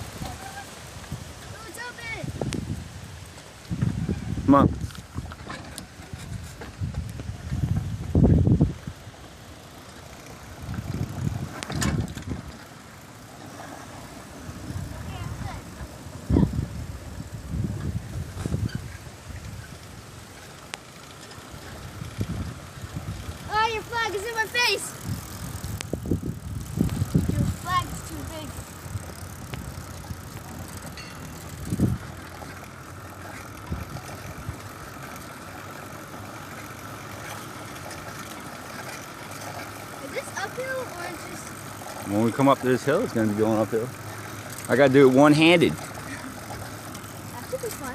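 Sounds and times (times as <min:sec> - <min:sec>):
bicycle road noise: 0:00.0 - 0:47.9
bike rattling: 0:00.0 - 0:47.9
wind rumbling on microphone: 0:02.2 - 0:09.2, 0:10.3 - 0:12.6, 0:14.3 - 0:20.4, 0:21.5 - 0:24.0, 0:24.9 - 0:32.6, 0:33.5 - 0:34.9.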